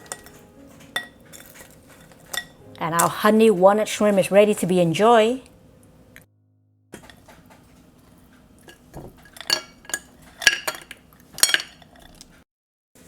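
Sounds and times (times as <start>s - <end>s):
utensils clinking on a dish: 0.0s - 3.1s, 7.0s - 12.3s.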